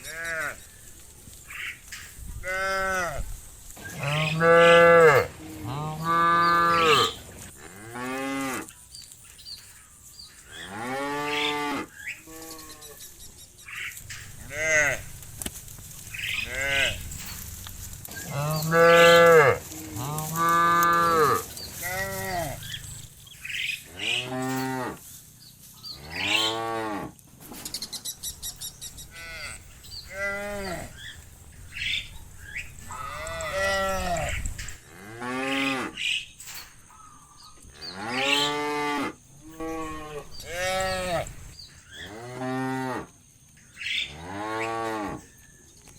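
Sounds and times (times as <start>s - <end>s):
cattle mooing: 3.9s - 8.7s, 14.1s - 15.3s, 16.1s - 17.3s, 18.0s - 23.0s, 23.8s - 25.0s, 29.1s - 31.0s, 32.8s - 36.0s, 37.9s - 41.4s.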